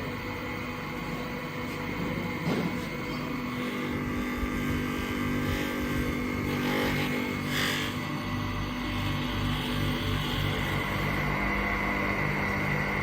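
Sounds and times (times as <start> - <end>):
machine motor humming: 0.0 - 13.0.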